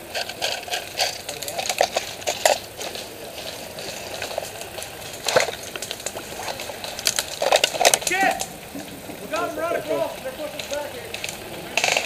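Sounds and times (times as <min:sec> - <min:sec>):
rustling noise: 0:00.0 - 0:12.0
sharp clicks: 0:03.9 - 0:09.5, 0:10.1 - 0:12.0.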